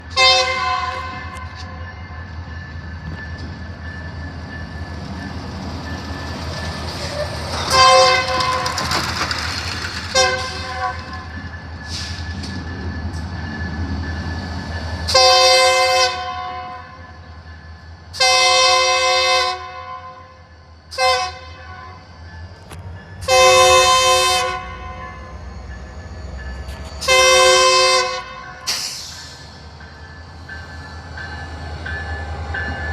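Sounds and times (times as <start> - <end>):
train engine rumble: 0.0 - 32.9
locomotive horn blasts: 0.1 - 1.6, 7.6 - 8.8, 10.1 - 11.3, 15.1 - 17.0, 18.2 - 22.0, 23.2 - 25.3, 27.0 - 28.7.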